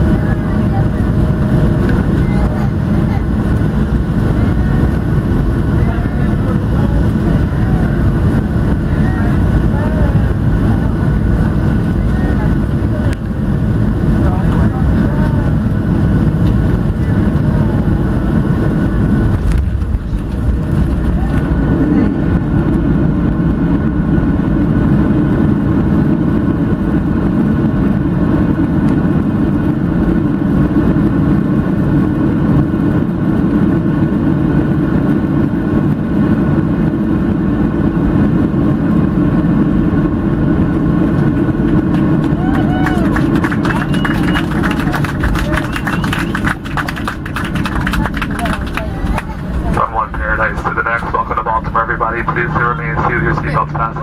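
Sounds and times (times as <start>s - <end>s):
aircraft cabin engine rumble: 0.0s - 54.0s
faint steady whine: 27.9s - 54.0s.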